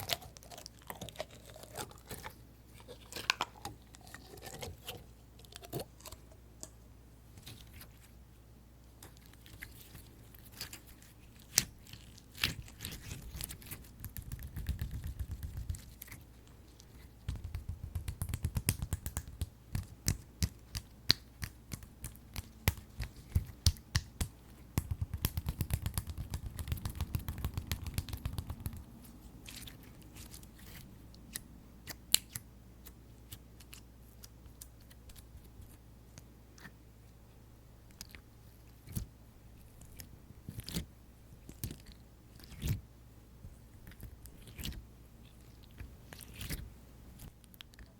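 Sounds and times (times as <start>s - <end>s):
fingers tapping sticky slime: 14.0s - 15.8s, 17.3s - 28.8s.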